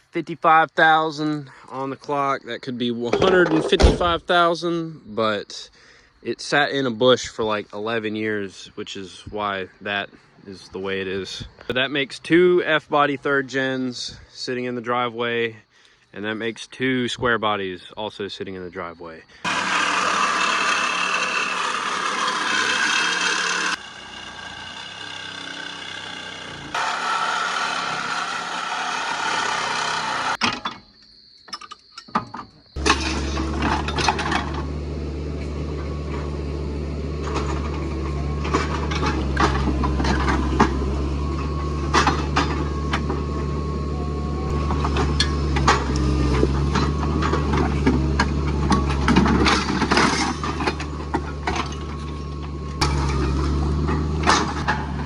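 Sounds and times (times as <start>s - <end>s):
vehicle engine idling: 23.5s - 26.9s, 32.8s - 55.0s.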